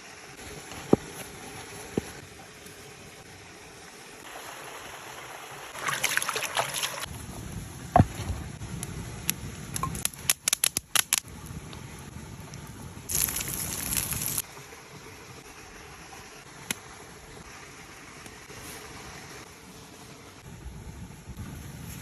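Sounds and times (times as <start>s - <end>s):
food sizzling on hot stone: 13.1s - 14.4s.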